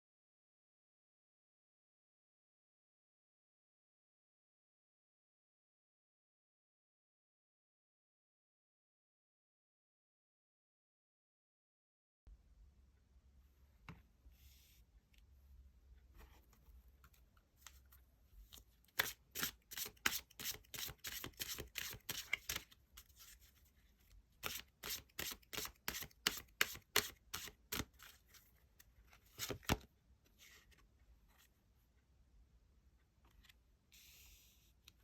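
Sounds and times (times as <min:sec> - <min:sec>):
cards being shuffled: 0:18.5 - 0:23.5, 0:24.4 - 0:28.5, 0:29.1 - 0:29.9.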